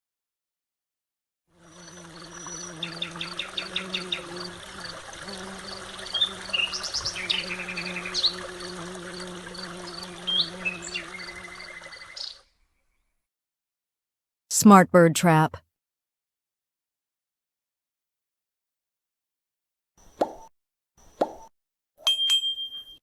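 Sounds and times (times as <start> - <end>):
birds calling: 1.8 - 12.4.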